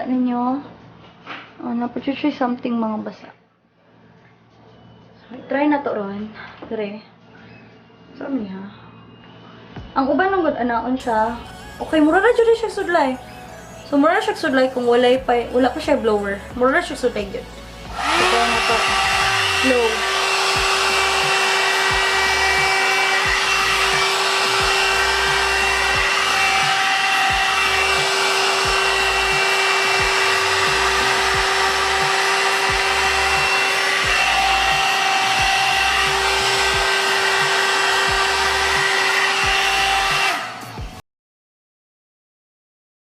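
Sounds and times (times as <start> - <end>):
hair dryer brush running: 17.8 - 41.0.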